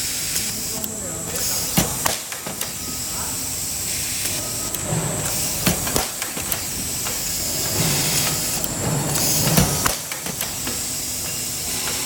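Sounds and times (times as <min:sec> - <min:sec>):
welding machine hiss: 0:00.0 - 0:12.0
sharp clicks and knocks: 0:05.2 - 0:07.3, 0:08.2 - 0:12.0.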